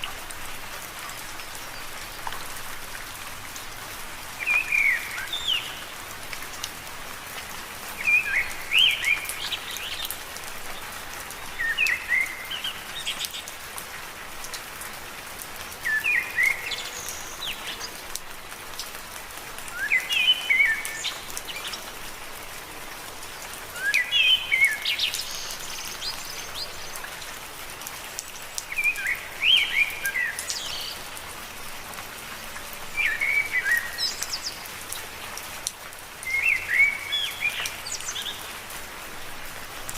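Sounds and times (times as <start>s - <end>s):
gentle rain on leaves: 0.0s - 39.9s.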